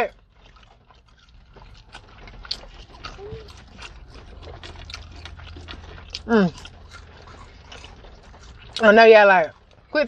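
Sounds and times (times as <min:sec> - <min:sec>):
chewing and lip smacks: 0:00.0 - 0:10.0
person humming: 0:03.2 - 0:03.5.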